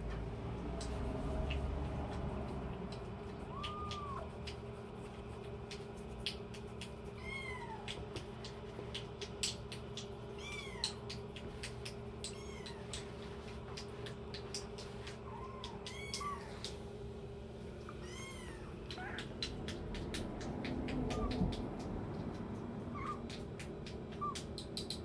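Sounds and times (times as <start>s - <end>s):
light clicks and taps: 0.0s - 16.8s, 18.2s - 25.0s
kittens mewing: 3.0s - 4.6s, 7.0s - 8.2s, 10.2s - 13.9s, 14.6s - 16.8s, 17.8s - 24.5s.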